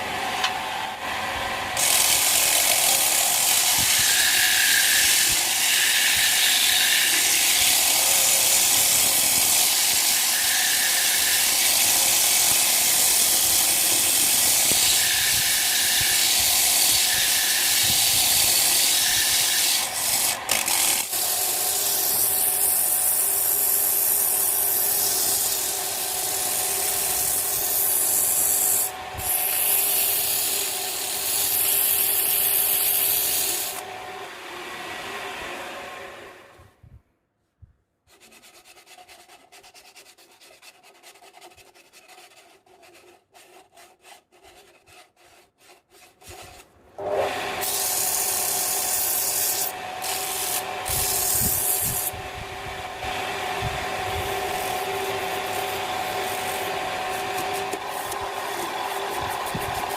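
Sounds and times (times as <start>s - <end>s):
wood lathe rasping hiss: 1.8s - 33.9s, 47.0s - 59.9s.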